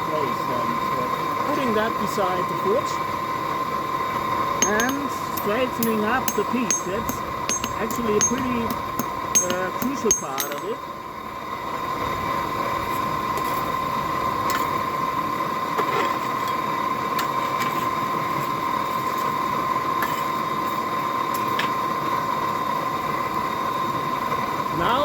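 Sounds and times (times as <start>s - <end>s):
faint light metal clinks: 4.6s - 10.8s.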